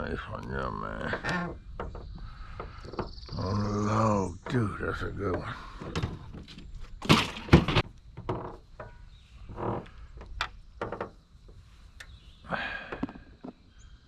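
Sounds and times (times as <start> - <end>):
knocks and thumps on a boat: 1.0 - 3.6, 4.3 - 9.0.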